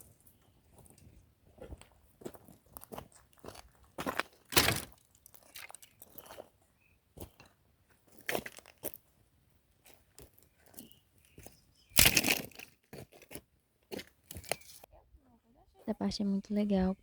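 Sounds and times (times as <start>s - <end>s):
dry wood and brush cracking: 11.3s - 14.9s.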